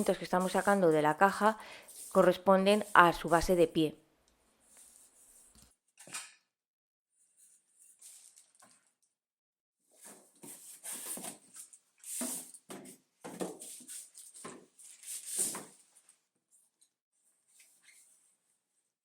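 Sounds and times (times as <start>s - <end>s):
plastic wrapping rustling: 7.9s - 9.1s.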